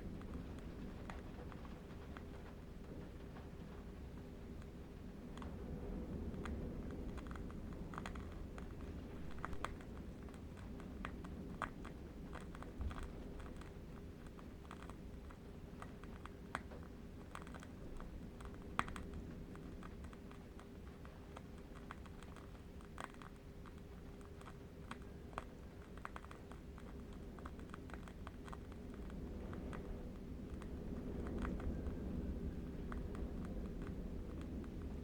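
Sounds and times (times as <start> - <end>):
faint steady hum: 0.0 - 35.0
irregular clicking and crackling: 0.0 - 35.0
low steady rumble: 0.0 - 35.0.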